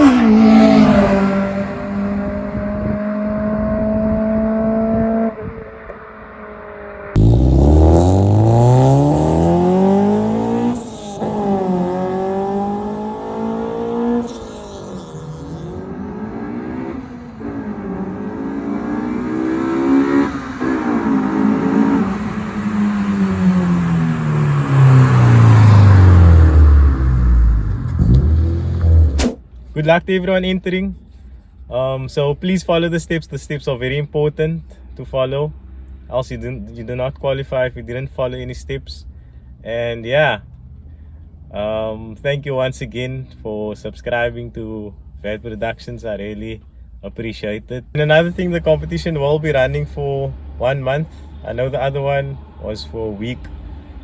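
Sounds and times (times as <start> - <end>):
car engine revving: 0.0 - 29.4.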